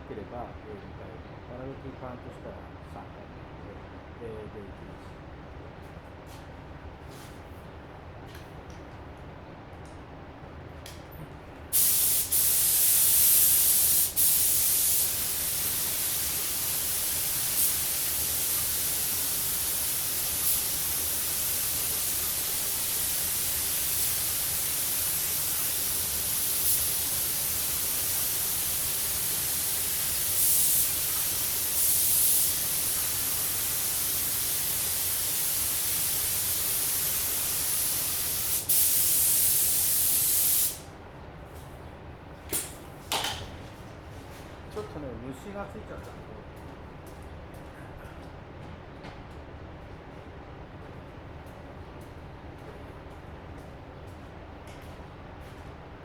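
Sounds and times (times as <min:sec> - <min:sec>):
paint spray gun hissing: 0:11.8 - 0:40.8.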